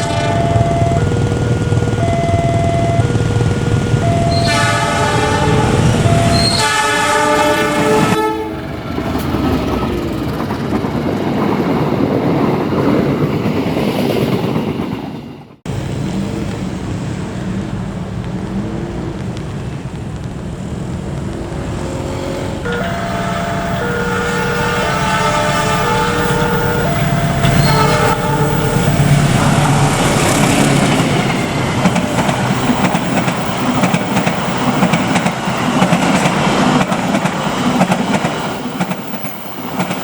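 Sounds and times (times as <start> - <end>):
train horn blasts: 0.0 - 0.7, 4.0 - 8.8, 21.9 - 30.2
train rumbling: 0.0 - 40.0.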